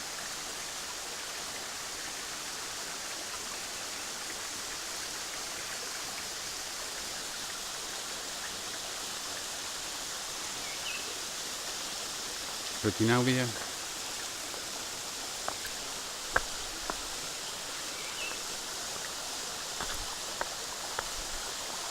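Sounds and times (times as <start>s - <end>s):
waterfall splashing onto rock: 12.3s - 21.9s.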